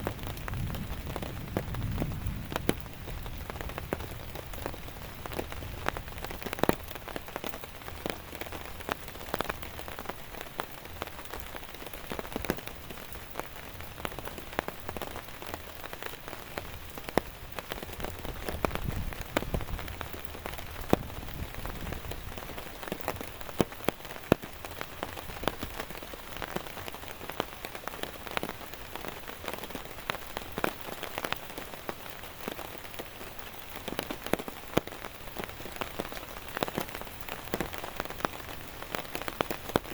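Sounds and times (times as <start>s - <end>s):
heavy rain: 0.0s - 39.9s
raindrops tapping: 0.0s - 39.9s.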